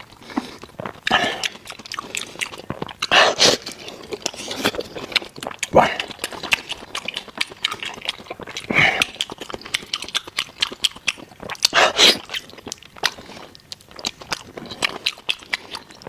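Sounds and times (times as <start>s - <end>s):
chewing with mouth clicks: 0.0s - 16.0s
lip smacks: 0.0s - 16.0s.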